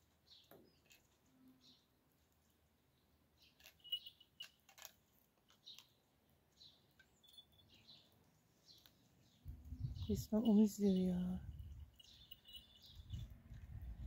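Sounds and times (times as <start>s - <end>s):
faint bird chirps: 5.7s - 13.3s.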